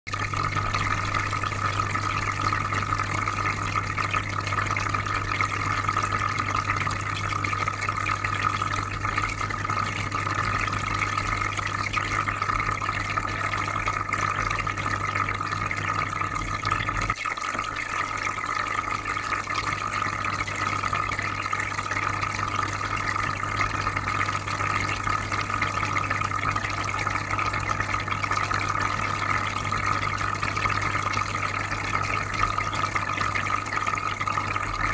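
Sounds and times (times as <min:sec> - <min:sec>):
aquarium filter humming: 0:00.1 - 0:34.9
bubbling water: 0:00.1 - 0:34.9.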